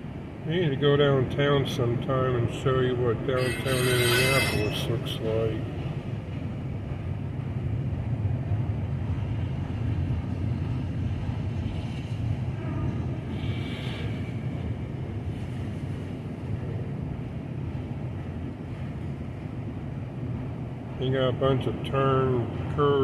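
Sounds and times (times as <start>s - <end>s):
train wheels rumbling on rails: 0.0s - 23.0s
high hiss or squeal: 3.4s - 5.0s.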